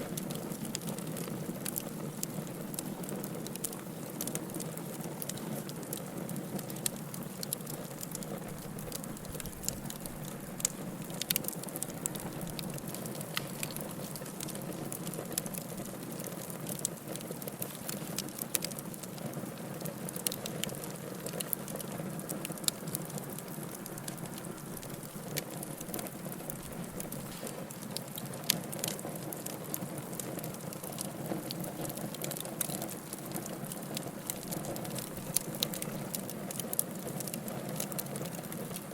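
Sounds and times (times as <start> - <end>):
fire crackling and popping: 0.0 - 38.9
low rush of flames: 20.2 - 29.8.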